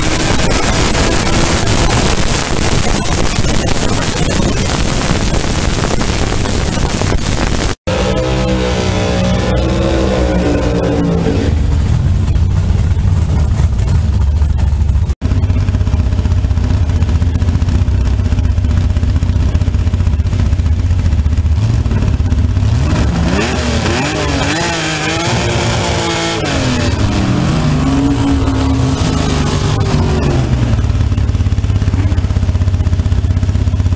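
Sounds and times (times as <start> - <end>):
dragster engine idling and revving: 0.0 - 33.9.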